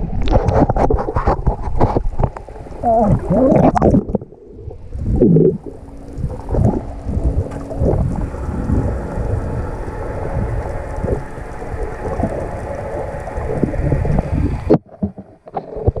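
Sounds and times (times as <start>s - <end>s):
rushing water: 0.0s - 16.0s
wind buffeting microphone: 4.7s - 14.8s.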